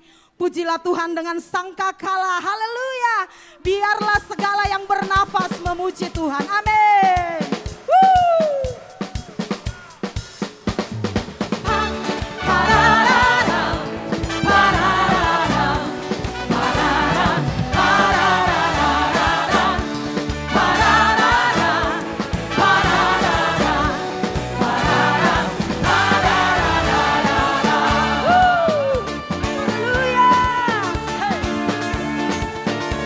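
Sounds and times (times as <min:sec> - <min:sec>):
gospel band playing: 0:06.8 - 0:33.0
voices singing: 0:11.6 - 0:29.1.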